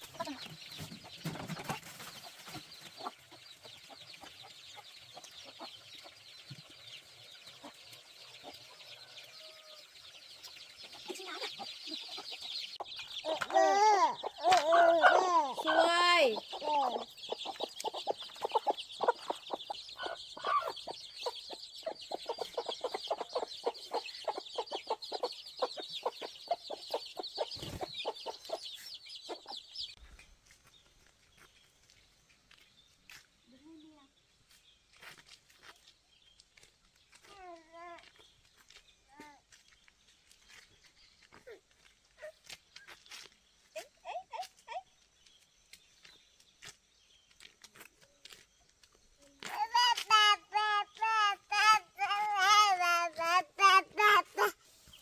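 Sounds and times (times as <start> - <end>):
chickens clucking: 0.0 - 30.0.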